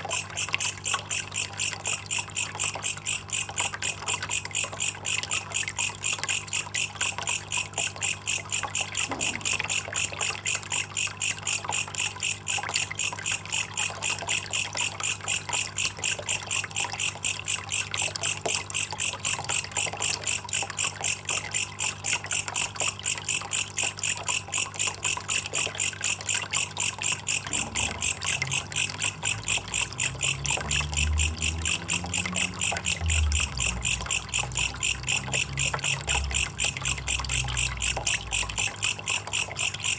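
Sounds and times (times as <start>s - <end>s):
faint trickling water: 0.0s - 39.9s
katydid calling: 26.8s - 39.9s.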